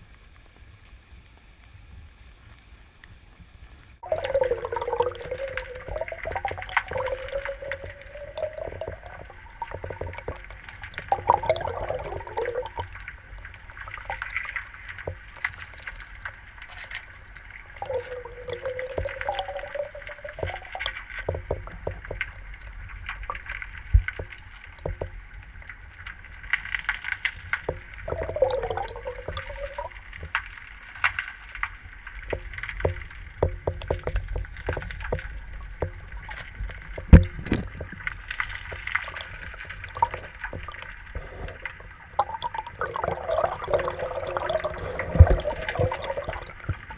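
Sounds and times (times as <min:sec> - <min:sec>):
small clicks and knocks: 0:20.4 - 0:28.0, 0:30.2 - 0:41.9.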